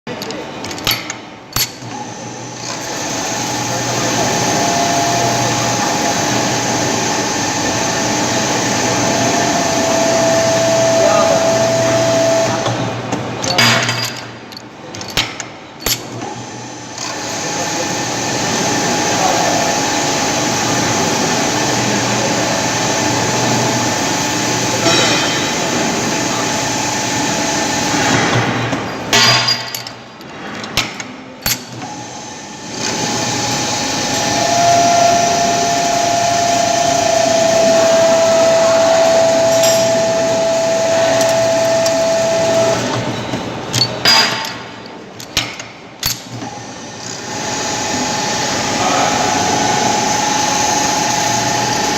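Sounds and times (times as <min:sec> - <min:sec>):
sharp metallic clicks and knocks: 0:00.1 - 0:01.9, 0:13.1 - 0:16.3, 0:28.3 - 0:31.9, 0:43.7 - 0:46.5
turning machine running: 0:00.1 - 0:13.5, 0:15.8 - 0:29.1, 0:31.4 - 0:51.9.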